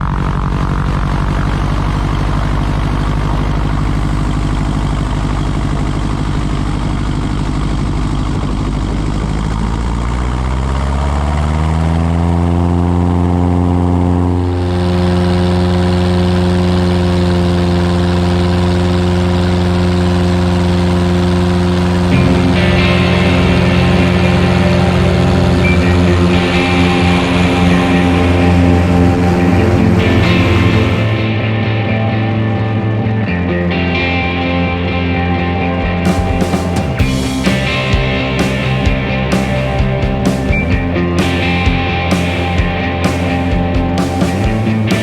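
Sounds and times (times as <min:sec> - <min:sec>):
light aircraft engine and propeller: 0:00.0 - 0:32.2.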